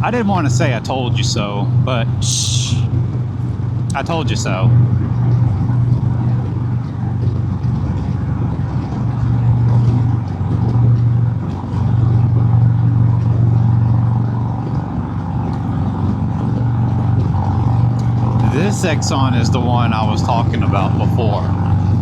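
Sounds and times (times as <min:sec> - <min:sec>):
motorcycle engine drone: 0:00.0 - 0:22.0
wind on microphone: 0:00.0 - 0:22.0.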